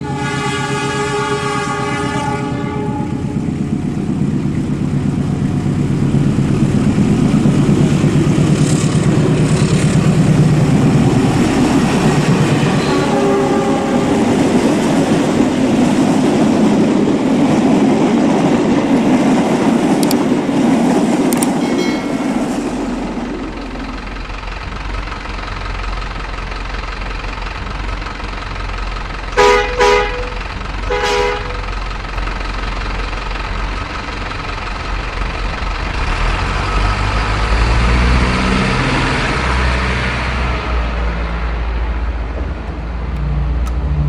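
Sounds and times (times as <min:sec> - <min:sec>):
toy train horn: 0:00.0 - 0:03.4, 0:12.7 - 0:14.5, 0:29.4 - 0:31.7
toy train rumbling on track: 0:02.5 - 0:38.4.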